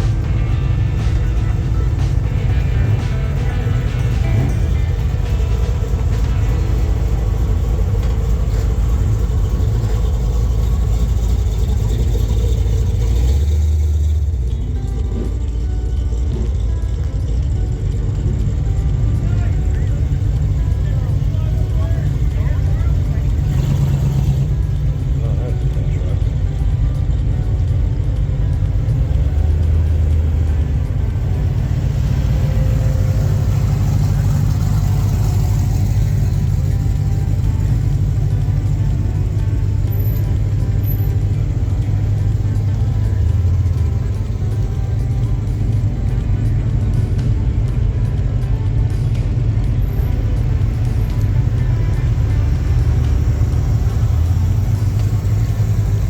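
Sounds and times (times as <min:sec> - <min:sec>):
car engine driving past: 0:18.0 - 0:48.4.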